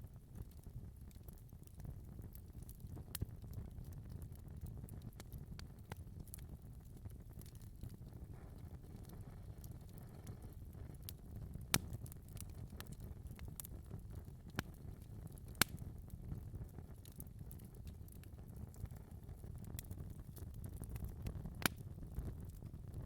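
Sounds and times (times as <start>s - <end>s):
low sound of flames: 0.0s - 23.0s
small ticks of fire: 0.0s - 23.0s
sharp pops of fire: 11.6s - 13.9s, 14.5s - 16.4s, 19.7s - 22.6s.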